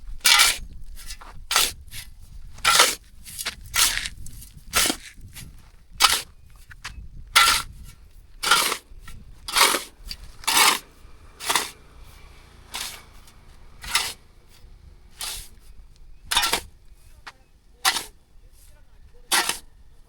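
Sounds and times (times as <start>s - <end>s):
hand tool rasping hard material: 0.2s - 6.3s, 7.4s - 7.8s, 8.4s - 8.9s, 9.5s - 16.8s, 17.8s - 18.2s, 19.2s - 19.7s.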